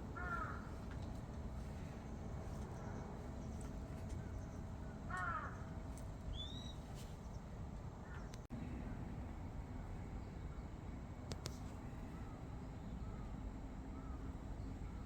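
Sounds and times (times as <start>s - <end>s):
low outdoor background: 0.0s - 15.0s
crow cawing: 0.2s - 0.8s, 5.1s - 5.7s, 13.9s - 14.3s.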